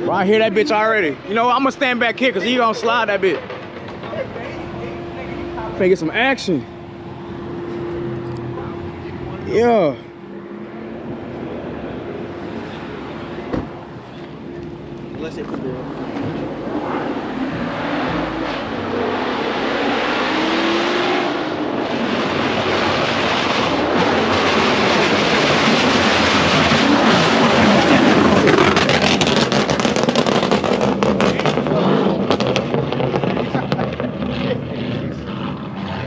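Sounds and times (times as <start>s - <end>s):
car engine revving hard: 0.0s - 36.0s
dense rushing noise: 0.0s - 36.0s
exhaust cracks and pops: 3.3s - 4.4s, 22.2s - 36.0s.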